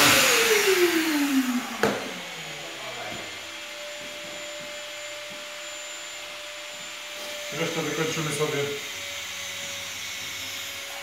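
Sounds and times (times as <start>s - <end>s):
sander spinning down: 0.0s - 11.0s.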